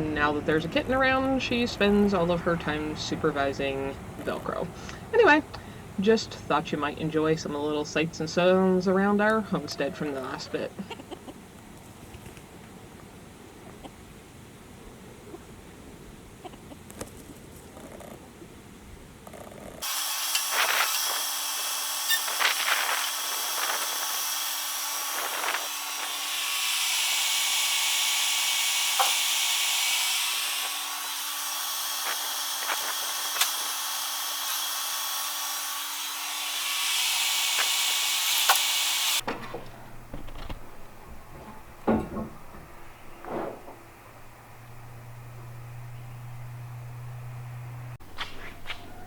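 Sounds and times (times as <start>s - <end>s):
power tool humming: 19.8s - 39.3s, 44.1s - 48.0s.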